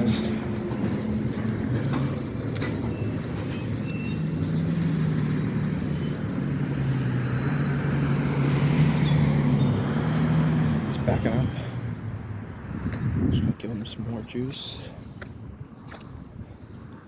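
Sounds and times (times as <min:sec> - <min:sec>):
locomotive diesel engine drone: 0:00.0 - 0:12.7.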